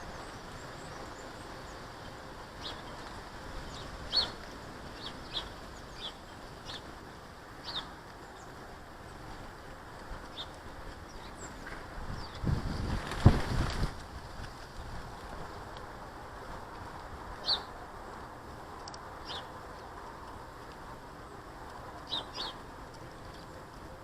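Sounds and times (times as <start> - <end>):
birds chirping: 0.0 - 13.3, 17.3 - 18.0, 19.2 - 19.9, 21.2 - 24.0.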